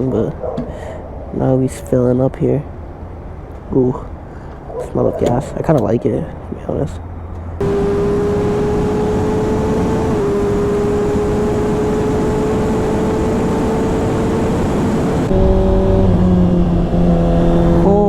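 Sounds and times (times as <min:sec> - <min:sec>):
sport bike engine high pitch: 0:07.6 - 0:18.0.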